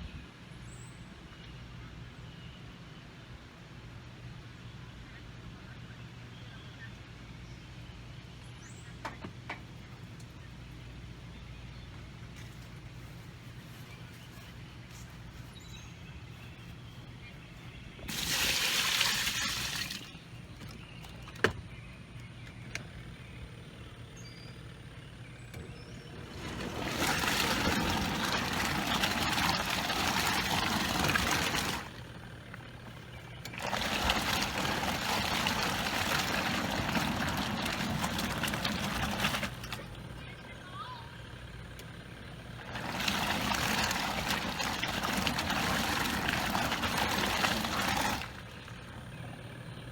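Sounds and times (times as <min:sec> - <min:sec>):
water sloshing in washer: 0:17.9 - 0:21.6, 0:25.5 - 0:40.9, 0:41.6 - 0:49.9.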